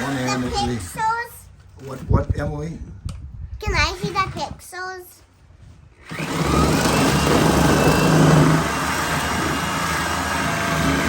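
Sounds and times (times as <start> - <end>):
power tool motor cutting: 0.0 - 1.1, 6.0 - 11.0.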